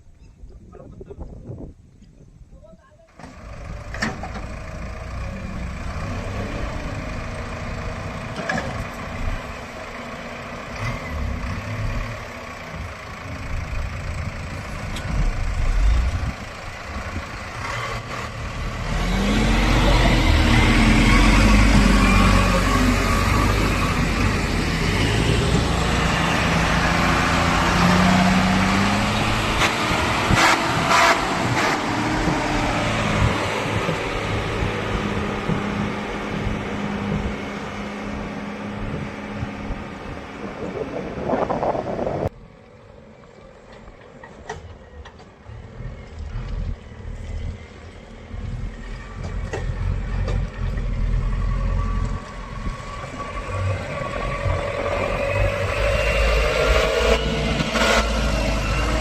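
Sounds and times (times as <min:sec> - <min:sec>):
diesel engine revving under load: 0:03.2 - 0:42.3, 0:45.3 - 0:59.0.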